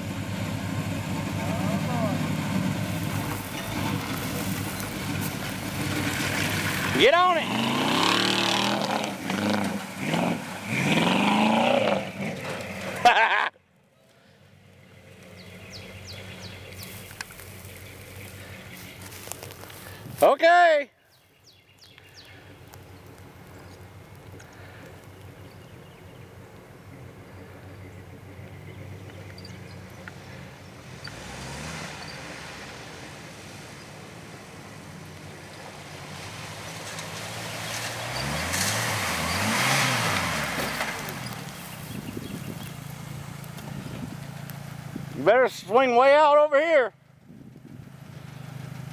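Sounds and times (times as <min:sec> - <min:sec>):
truck engine running: 0:00.0 - 0:13.1, 0:34.0 - 0:46.2, 0:47.0 - 0:48.9
mud and water splashing: 0:00.1 - 0:13.5, 0:15.0 - 0:20.3, 0:29.8 - 0:45.8.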